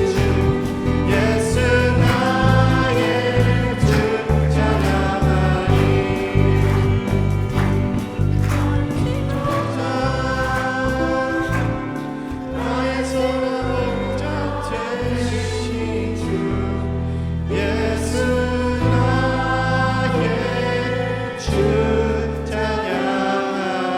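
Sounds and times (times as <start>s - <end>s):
band bass notes: 0.0s - 22.9s
group singing worship song: 0.0s - 23.9s.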